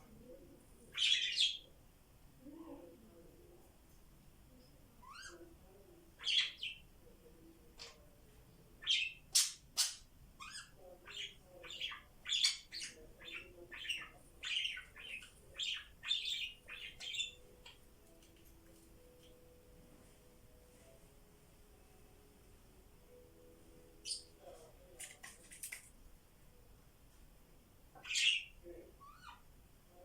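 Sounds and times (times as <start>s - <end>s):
budgies chirping and chattering: 8.8s - 17.8s, 28.0s - 29.4s.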